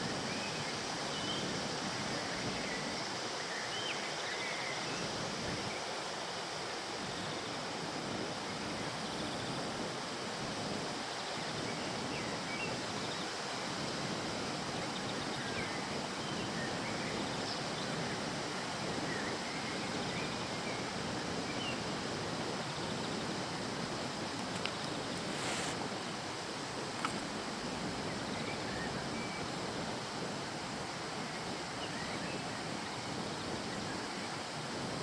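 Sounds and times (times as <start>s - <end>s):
flowing river water: 0.0s - 35.0s.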